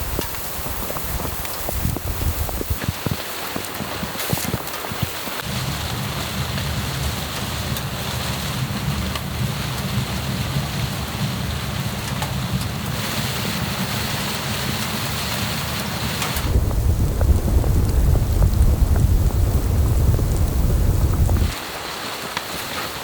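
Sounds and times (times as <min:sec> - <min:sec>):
low rumble of wind: 0:00.0 - 0:04.2, 0:16.0 - 0:21.6
rain pattering on a tent: 0:00.0 - 0:23.0.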